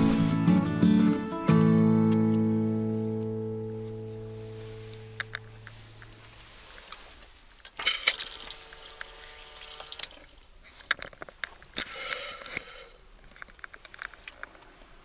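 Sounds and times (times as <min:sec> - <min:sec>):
acoustic guitar music: 0:00.0 - 0:06.0
water pouring: 0:08.0 - 0:10.4.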